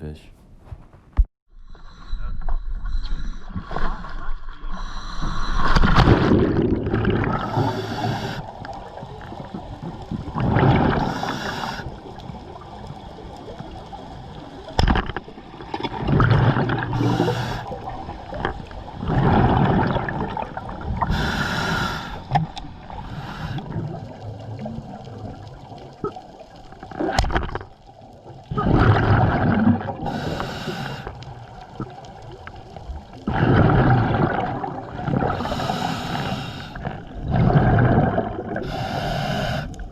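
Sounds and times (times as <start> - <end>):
diver breathing through regulator: 1.6 - 6.4, 7.3 - 8.6, 10.9 - 12.0, 16.9 - 17.9, 21.0 - 23.8, 30.0 - 31.3, 35.2 - 37.1, 38.5 - 39.9
bubbles gurgling: 5.4 - 39.9.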